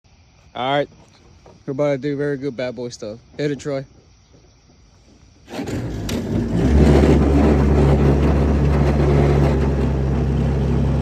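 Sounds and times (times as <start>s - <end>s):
boat motor running: 5.5s - 11.0s.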